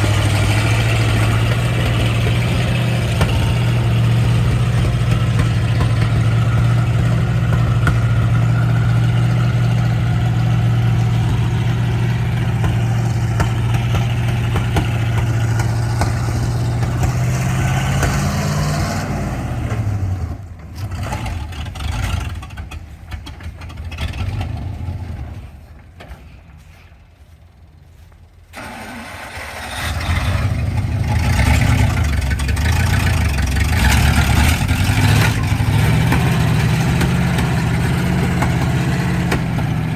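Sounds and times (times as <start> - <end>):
vehicle engine running: 0.0 - 39.9
engine starting: 28.5 - 32.5.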